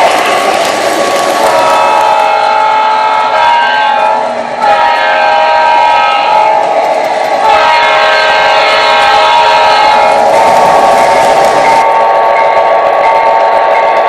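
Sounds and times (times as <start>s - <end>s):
locomotive air horn blasts: 1.5s - 6.6s, 7.4s - 10.2s.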